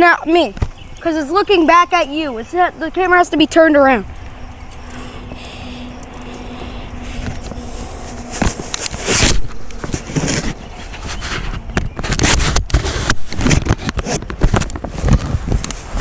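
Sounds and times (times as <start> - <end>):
wind rumble on microphone: 0.0 - 16.0
camera handling scraping: 7.0 - 16.0.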